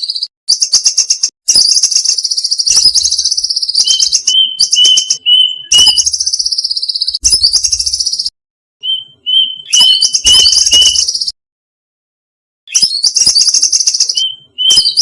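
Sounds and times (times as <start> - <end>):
cuckoo trilling calls: 1.8 - 11.4.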